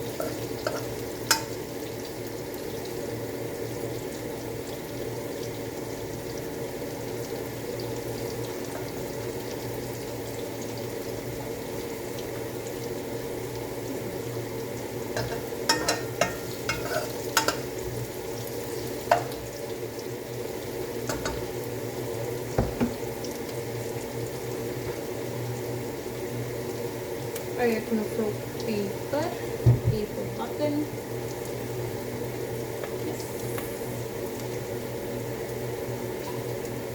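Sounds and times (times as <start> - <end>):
food sizzling in a pan: 0.0 - 36.9
utensil knocking against pan: 22.6 - 23.0.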